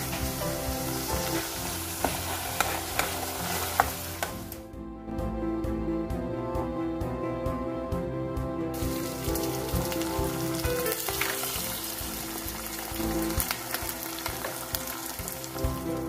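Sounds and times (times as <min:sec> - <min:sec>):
chicken sizzling in a pot: 0:00.0 - 0:04.6, 0:08.8 - 0:16.0
background music: 0:00.0 - 0:16.0.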